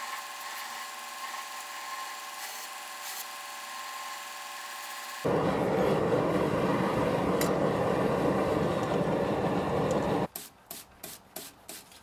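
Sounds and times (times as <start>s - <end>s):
gas burner flame roaring: 5.2s - 10.3s.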